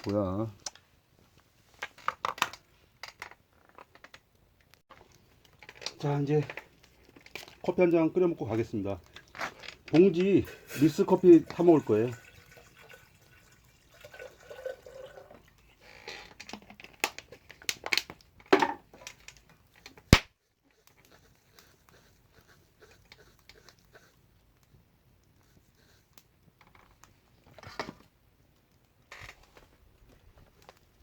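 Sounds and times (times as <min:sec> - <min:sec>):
clicks and knocks of handling: 0:01.8 - 0:07.7, 0:16.2 - 0:20.2.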